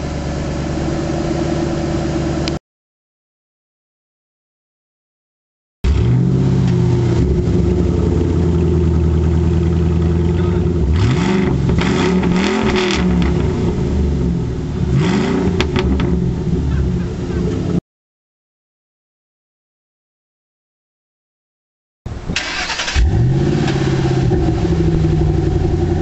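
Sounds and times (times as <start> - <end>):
car engine idling and revving: 0.0 - 2.6, 5.8 - 17.8, 22.5 - 26.0.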